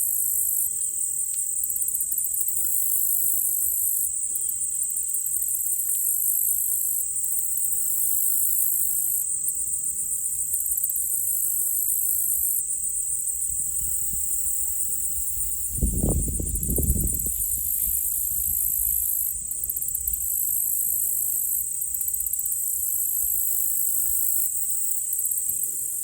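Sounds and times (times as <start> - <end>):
high pulsing insect buzz: 0.0 - 26.0
insects trilling: 0.0 - 26.0.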